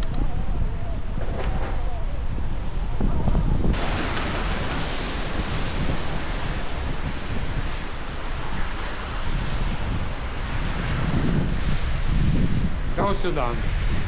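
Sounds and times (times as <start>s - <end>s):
wind buffeting microphone: 3.7s - 14.0s
heavy rain pouring: 3.8s - 12.0s.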